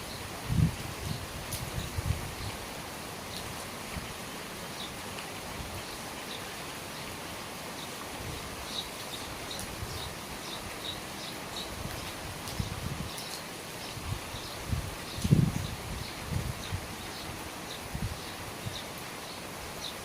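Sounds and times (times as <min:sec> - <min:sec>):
steady rain falling: 0:00.0 - 0:20.0
small birds chirping: 0:07.7 - 0:20.0.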